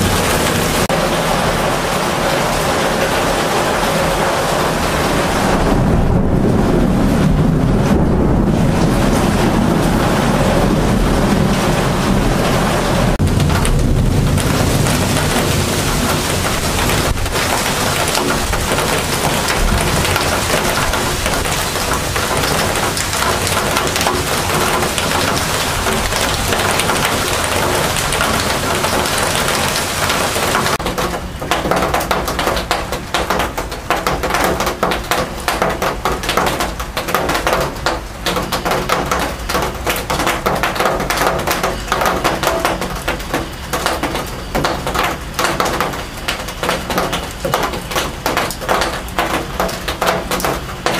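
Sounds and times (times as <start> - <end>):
heavy rain pouring: 0.0 - 50.9
drops splashing and ticking: 13.2 - 50.9.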